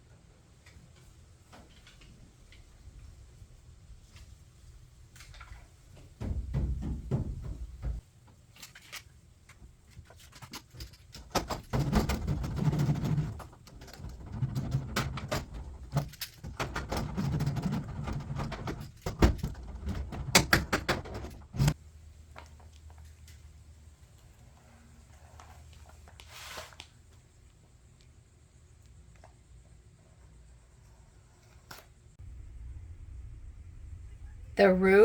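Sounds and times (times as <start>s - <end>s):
rubbing and rustling of sheets: 25.2s - 27.0s.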